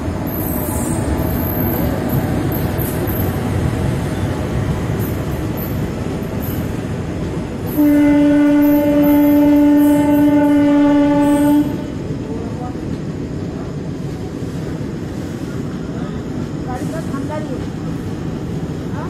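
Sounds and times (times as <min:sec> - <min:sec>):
train wheels rumbling on track: 0:00.0 - 0:19.0
train horn blast: 0:07.7 - 0:12.0.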